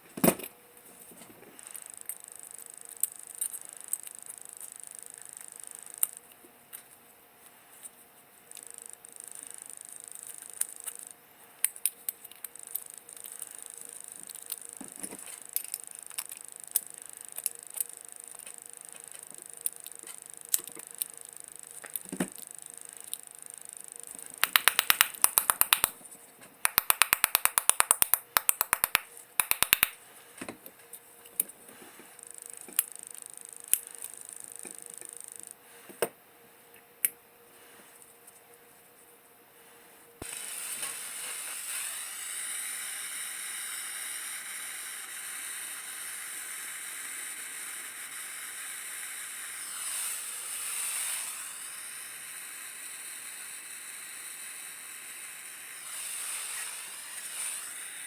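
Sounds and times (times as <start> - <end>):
fast even clicking: 24.4 - 26.0, 26.6 - 30.0
small clicks and taps: 24.4 - 26.0, 26.7 - 31.5.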